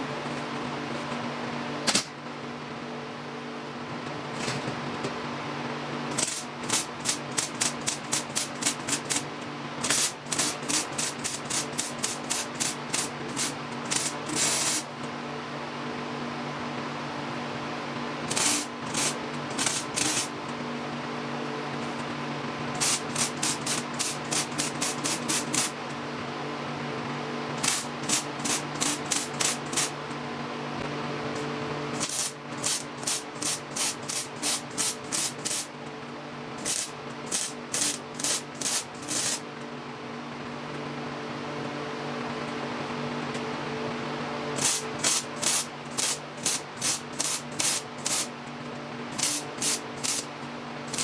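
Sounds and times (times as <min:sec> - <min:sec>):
welding machine hum: 0:05.7 - 0:15.1, 0:18.2 - 0:20.8, 0:21.7 - 0:26.0, 0:27.5 - 0:30.3, 0:31.3 - 0:39.8, 0:44.5 - 0:51.0
welder crackling hiss: 0:06.1 - 0:15.0, 0:18.3 - 0:20.4, 0:22.8 - 0:25.8, 0:27.6 - 0:30.0, 0:32.0 - 0:35.8, 0:36.6 - 0:39.4, 0:44.6 - 0:48.3, 0:49.2 - 0:50.3.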